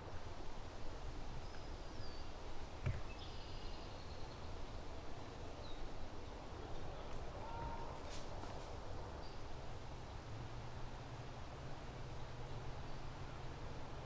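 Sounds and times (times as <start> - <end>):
birds chirping: 1.4 - 4.6.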